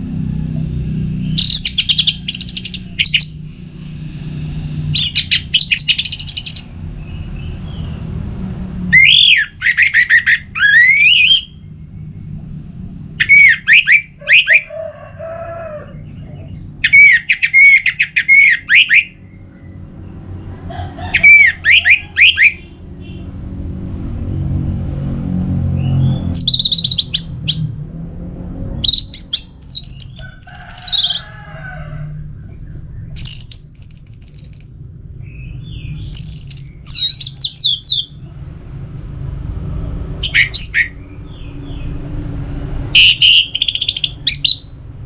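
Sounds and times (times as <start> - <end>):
thrush singing whistled phrases: 5.0 - 6.7, 9.0 - 11.6, 13.2 - 14.7, 16.8 - 19.4, 21.2 - 22.6, 40.2 - 41.0, 42.9 - 44.8
low rumble: 22.6 - 30.9.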